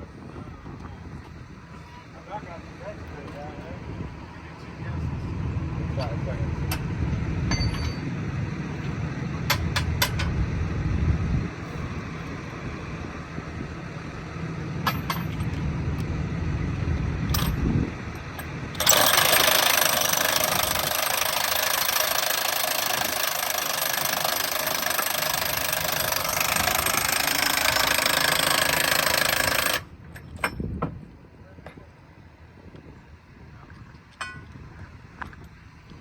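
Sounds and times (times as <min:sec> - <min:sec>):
low engine rumble: 0:00.0 - 0:18.9
impact wrench running: 0:18.4 - 0:29.9.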